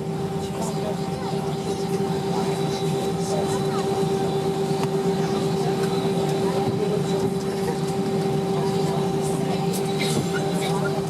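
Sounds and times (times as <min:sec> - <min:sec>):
aircraft cabin hum: 0:00.0 - 0:11.0.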